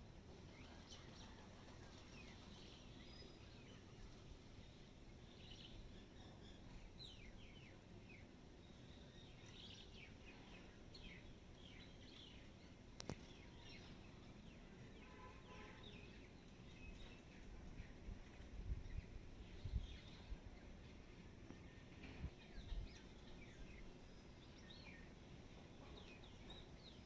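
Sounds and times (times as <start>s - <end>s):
small birds chirping: 0.4s - 27.0s.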